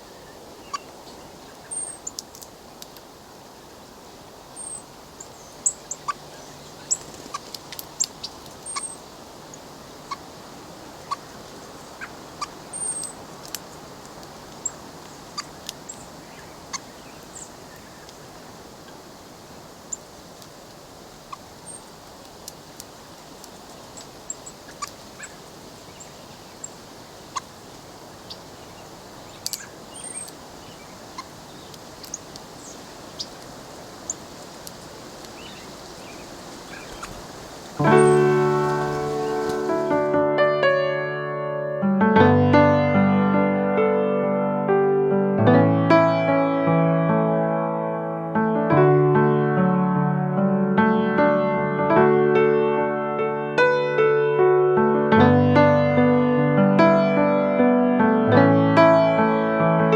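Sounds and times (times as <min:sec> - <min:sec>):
outdoor hiss: 0:00.0 - 0:40.4
beaks pecking at seeds: 0:00.6 - 0:03.1, 0:04.6 - 0:40.1
bird chip notes: 0:37.8 - 0:41.0.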